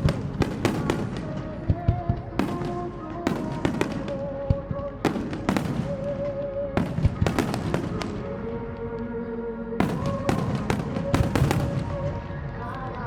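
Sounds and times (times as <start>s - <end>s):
fireworks bursting with rumble: 0.0s - 8.8s, 9.8s - 13.0s.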